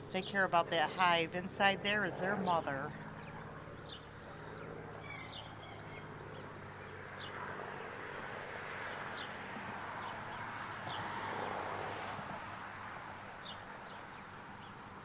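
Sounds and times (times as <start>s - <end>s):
honeybees buzzing: 0.0s - 5.0s
bird chirping: 2.1s - 7.4s.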